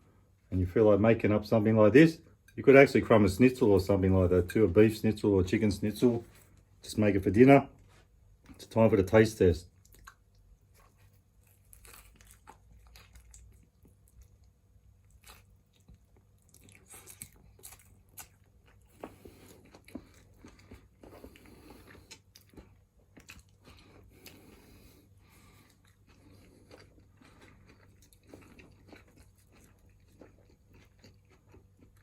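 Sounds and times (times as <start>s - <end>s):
person chewing crunchy food: 9.7s - 32.0s.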